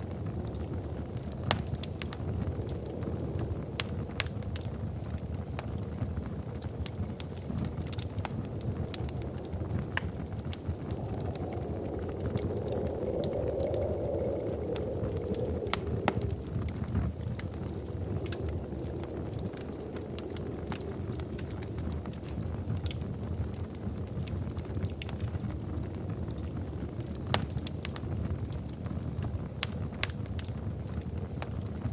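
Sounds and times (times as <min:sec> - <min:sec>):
wood fire crackling: 0:00.0 - 0:31.9.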